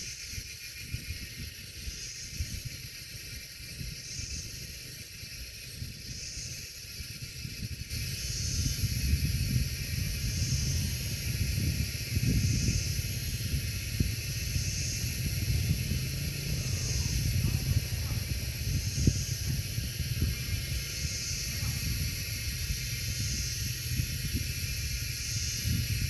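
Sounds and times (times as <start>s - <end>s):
high hiss: 0.0s - 26.0s
wind buffeting microphone: 0.2s - 26.0s.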